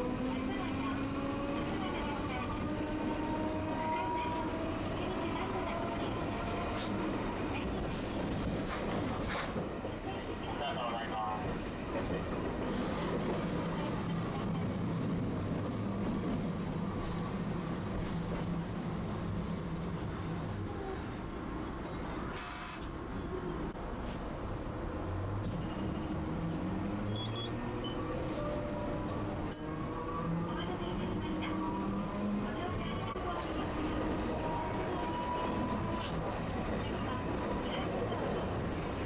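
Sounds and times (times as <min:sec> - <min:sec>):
streetcar wheels rumbling on rails: 0:00.0 - 0:39.0.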